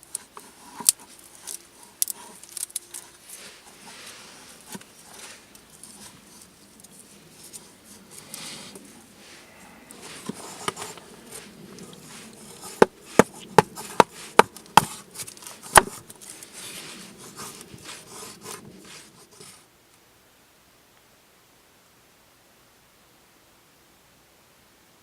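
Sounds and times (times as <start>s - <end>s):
rustling handling: 0.0s - 19.7s
wood being struck: 12.7s - 15.0s, 15.7s - 16.0s.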